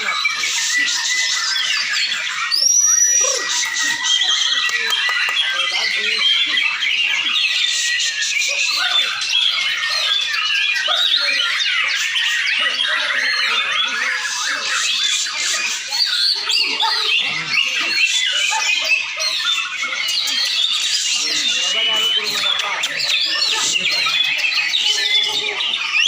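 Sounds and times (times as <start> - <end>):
birds singing in chorus: 0.0 - 26.0.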